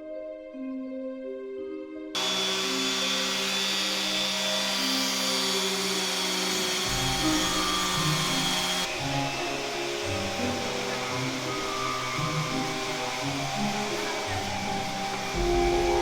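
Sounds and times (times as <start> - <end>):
soft background music: 0.0 - 2.2, 6.4 - 16.0
power tool humming and whining: 2.2 - 16.0.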